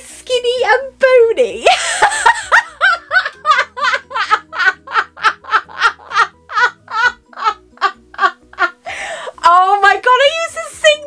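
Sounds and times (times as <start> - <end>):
woman laughing hard: 1.7 - 9.1.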